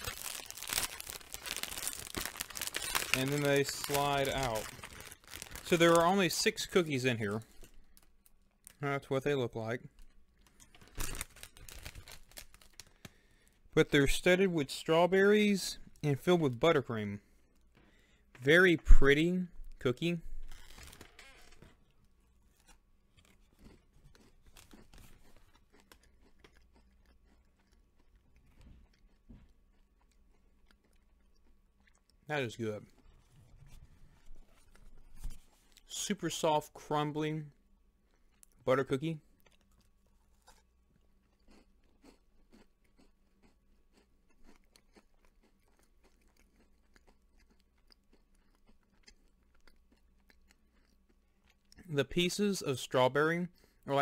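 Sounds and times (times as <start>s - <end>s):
faint chewing: 21.8s - 35.9s, 39.3s - 51.9s.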